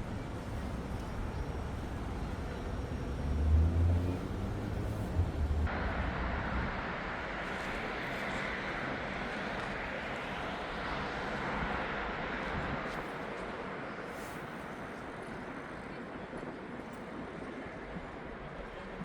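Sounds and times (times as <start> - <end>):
distant traffic: 0.0 - 13.8.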